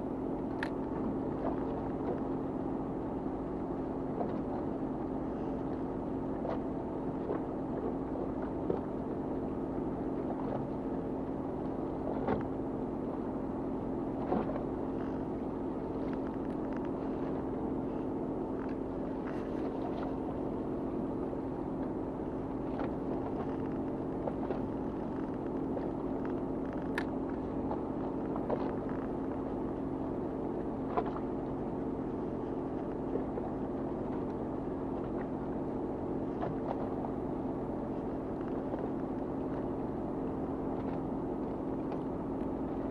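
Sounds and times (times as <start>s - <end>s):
boat engine running: 0.0s - 42.9s
faint clicks and knocks: 22.8s - 29.2s.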